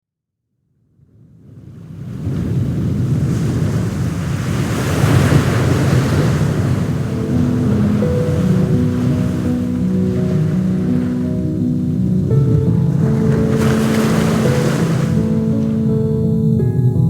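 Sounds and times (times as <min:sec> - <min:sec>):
wind: 0:00.9 - 0:16.8
sea waves washing in: 0:01.2 - 0:16.7
soft sustained music notes: 0:07.0 - 0:17.0.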